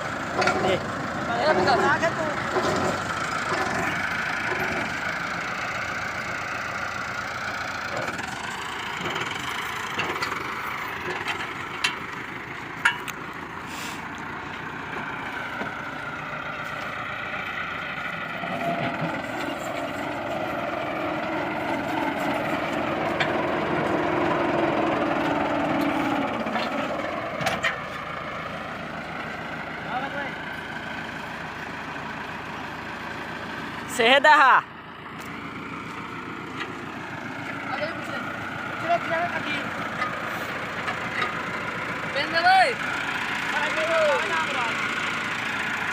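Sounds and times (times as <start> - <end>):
heavy engine running: 0.0 - 45.9.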